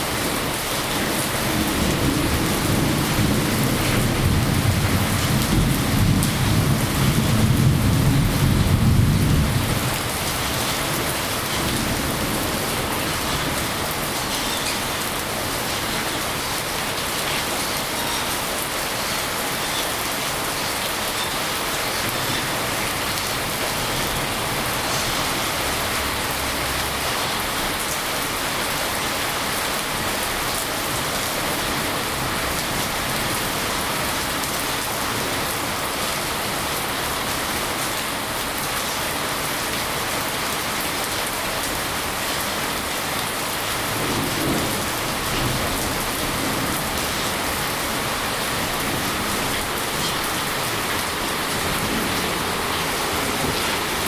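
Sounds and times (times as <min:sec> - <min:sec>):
heavy rain pattering: 0:00.0 - 0:54.0.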